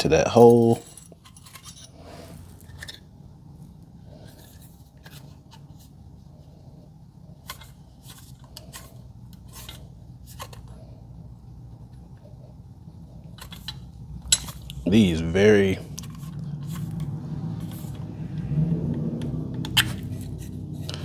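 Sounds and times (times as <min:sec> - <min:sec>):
metal parts clicking and tapping: 0:00.6 - 0:02.0, 0:13.3 - 0:14.8
steady low hum: 0:05.8 - 0:21.0.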